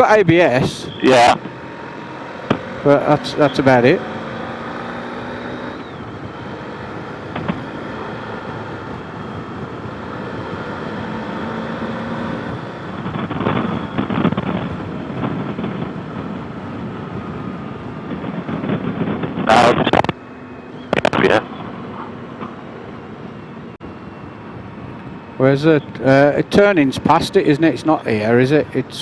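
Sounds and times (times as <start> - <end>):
faint motorcycle engine hum: 0.0 - 29.0
wind noise rushing: 4.1 - 20.2.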